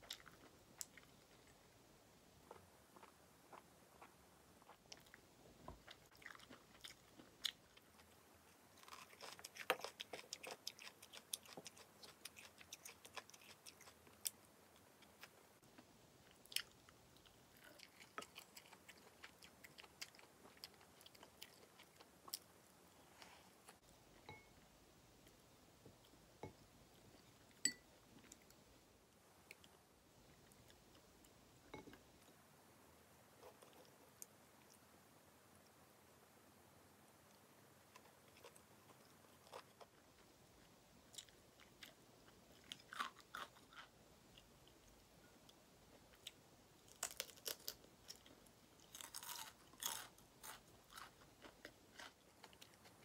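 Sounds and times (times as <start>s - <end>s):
chewing and crunching food: 0.0s - 1.7s, 2.4s - 24.5s, 37.8s - 53.0s.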